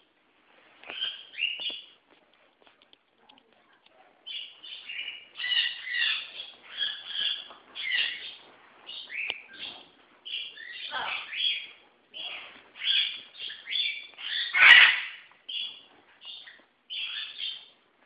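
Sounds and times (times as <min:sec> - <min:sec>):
parrots calling: 0:04.3 - 0:17.6.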